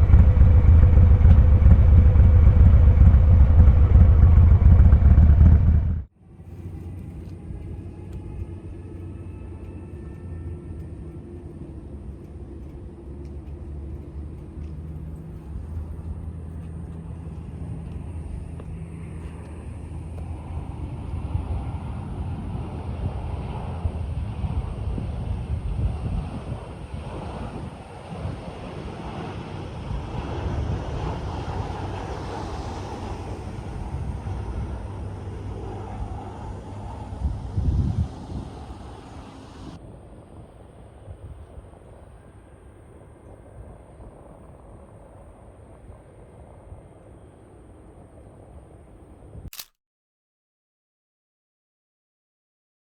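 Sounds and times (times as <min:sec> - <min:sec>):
motorcycle engine deep rumble: 0:00.0 - 0:06.1
road noise: 0:00.0 - 0:39.8.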